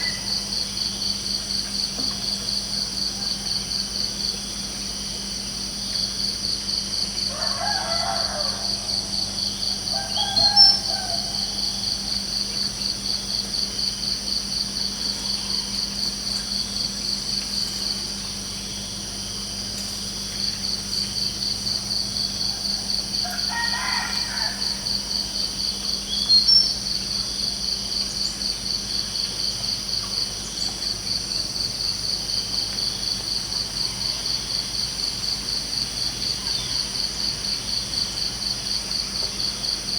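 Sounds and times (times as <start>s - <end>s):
crickets chirping: 0.0s - 39.9s
rooster crowing: 7.3s - 12.2s, 22.4s - 25.2s.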